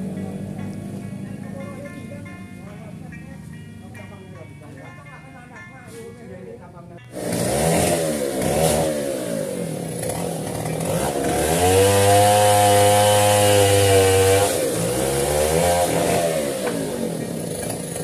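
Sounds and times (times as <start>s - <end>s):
chainsaw revving and cutting wood: 7.1s - 18.0s.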